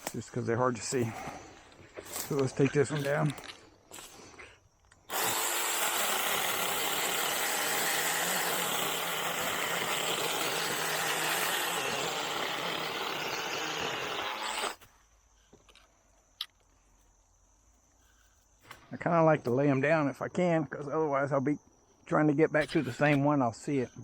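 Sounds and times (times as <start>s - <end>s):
cordless chainsaw cutting wood: 5.1s - 14.8s.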